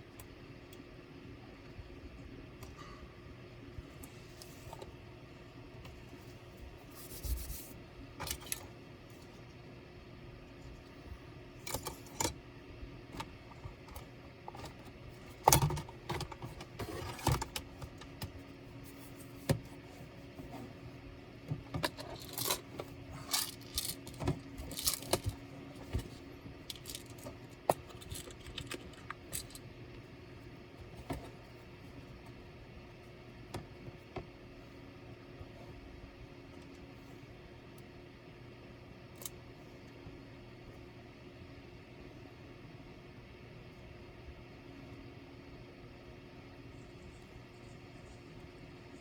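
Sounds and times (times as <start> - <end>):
clicks and clatters of laptop parts: 8.2 - 8.8, 11.6 - 12.4, 13.1 - 18.4, 21.5 - 29.6.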